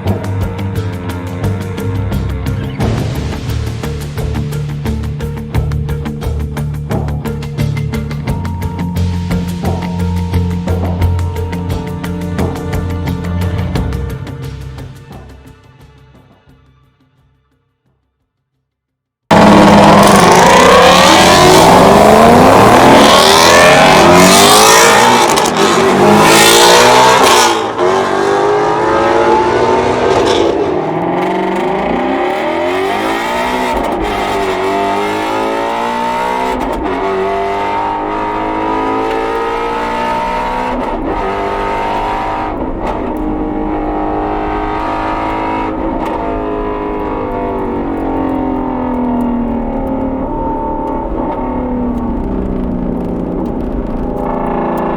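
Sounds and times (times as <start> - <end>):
car engine revving on track: 19.3 - 54.9.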